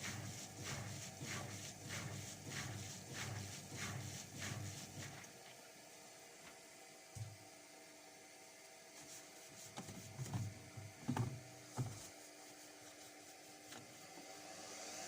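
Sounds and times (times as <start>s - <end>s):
washing machine hum: 0.0s - 15.0s
soft drum thumps: 10.2s - 12.1s.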